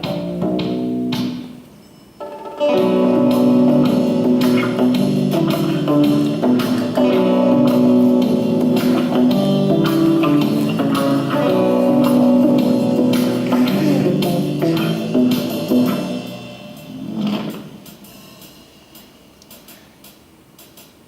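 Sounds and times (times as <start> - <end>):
plucked guitar music: 2.2 - 17.6.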